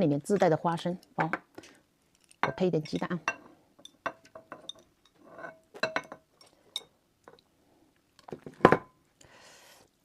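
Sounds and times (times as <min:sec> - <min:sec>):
tableware clinking: 0:02.4 - 0:06.9.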